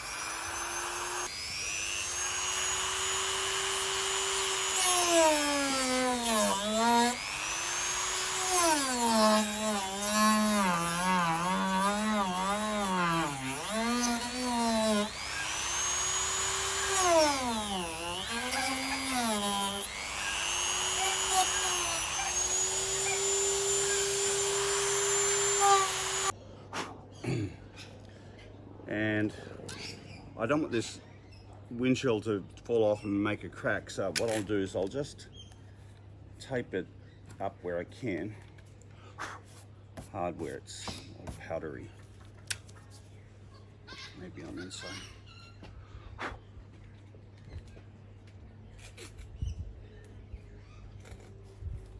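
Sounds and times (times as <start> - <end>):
rotary tool cutting plastic: 0.0 - 26.3.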